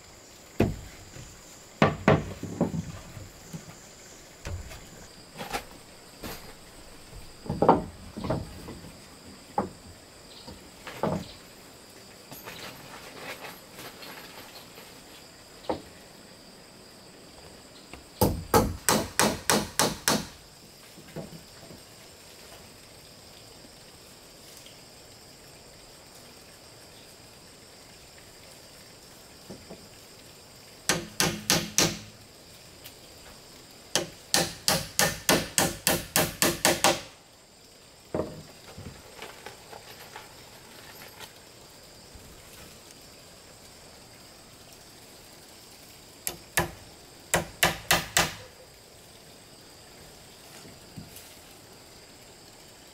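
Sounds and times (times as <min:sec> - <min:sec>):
hammer striking wood: 0:00.6 - 0:00.9, 0:01.8 - 0:02.8, 0:18.2 - 0:20.4, 0:30.9 - 0:32.1, 0:34.0 - 0:37.1, 0:46.3 - 0:48.4.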